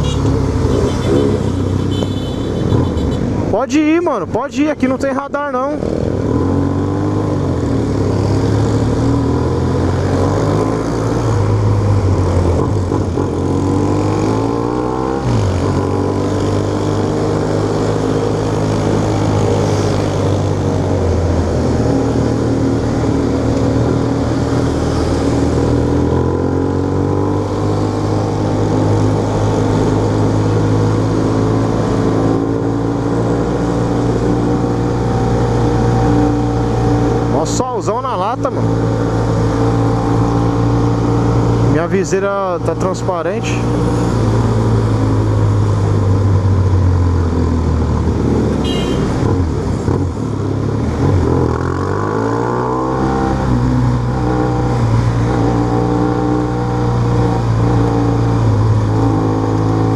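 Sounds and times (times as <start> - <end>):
motorcycle engine running: 48.6 - 50.2.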